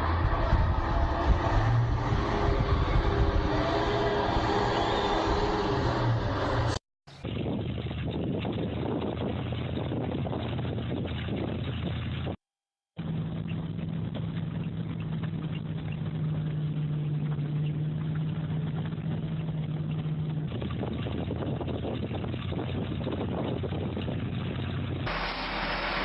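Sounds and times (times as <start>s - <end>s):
machine engine running: 25.1s - 26.0s.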